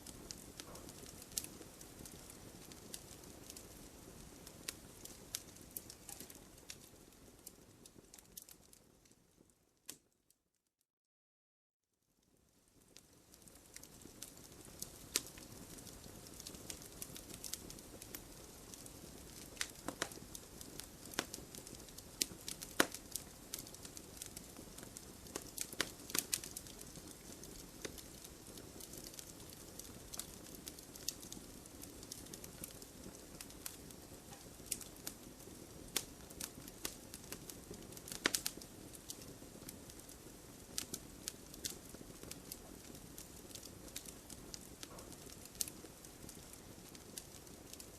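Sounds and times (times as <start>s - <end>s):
steady low hiss: 0.0s - 8.2s
fire crackling and popping: 0.0s - 10.1s, 12.2s - 47.9s.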